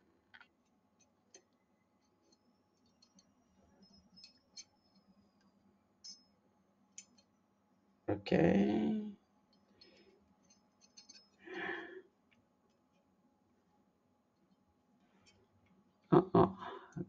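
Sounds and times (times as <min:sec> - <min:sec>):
small steel parts clicking: 0:00.3 - 0:07.4, 0:09.5 - 0:11.7.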